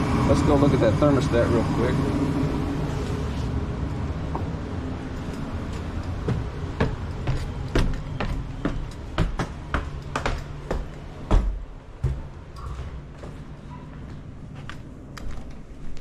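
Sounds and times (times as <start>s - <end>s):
gas furnace humming: 0.0s - 16.0s
footsteps: 4.4s - 16.0s.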